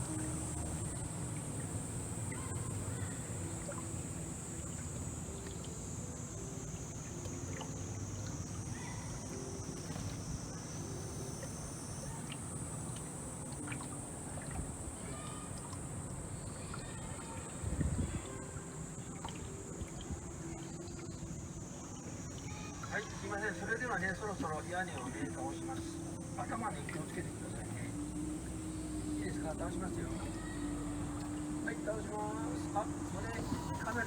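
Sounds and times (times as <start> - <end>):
boat engine hum: 0.0 - 34.0
water sounds: 0.0 - 34.0
high-pitched drone: 25.0 - 34.0.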